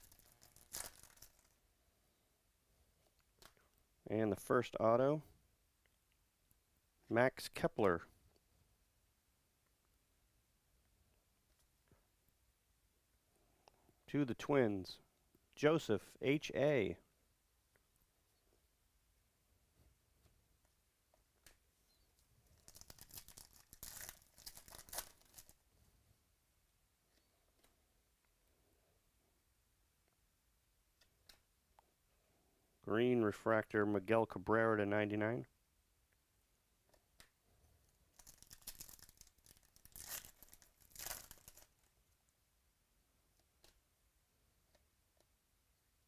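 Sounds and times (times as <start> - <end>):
plastic crinkling and tearing: 0.0 - 1.6, 22.5 - 25.6, 38.1 - 41.9.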